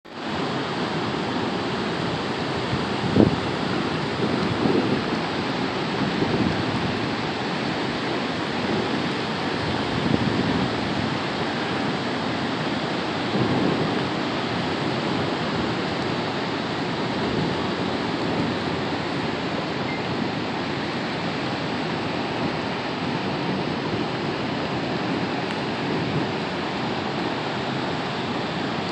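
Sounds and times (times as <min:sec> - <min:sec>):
heavy rain pouring: 0:00.1 - 0:28.9.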